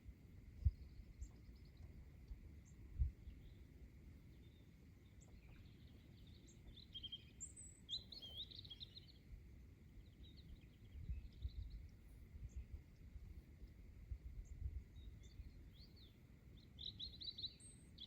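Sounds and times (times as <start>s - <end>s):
wind rumble on microphone: 0.0s - 3.6s, 10.3s - 16.1s
songbirds singing: 0.0s - 18.0s.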